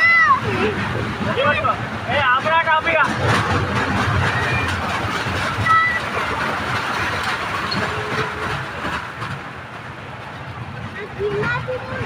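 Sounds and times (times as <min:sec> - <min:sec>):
fairground ride rumbling on track: 0:00.0 - 0:12.0.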